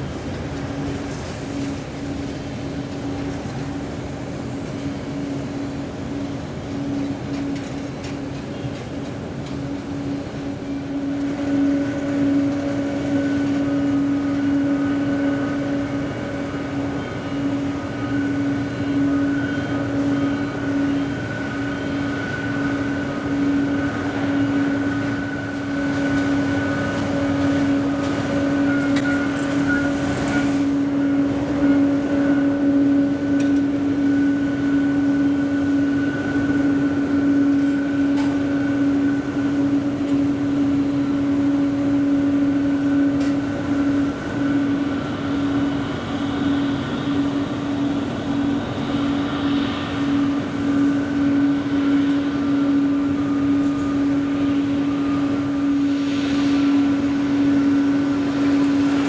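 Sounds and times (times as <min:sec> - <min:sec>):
jet engines droning: 0:00.0 - 0:59.0.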